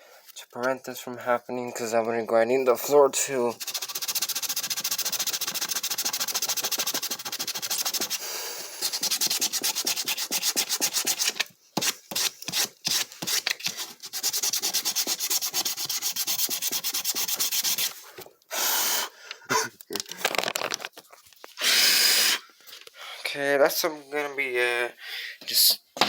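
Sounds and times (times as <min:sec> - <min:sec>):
sandpaper scraping on plywood: 0:03.5 - 0:18.0.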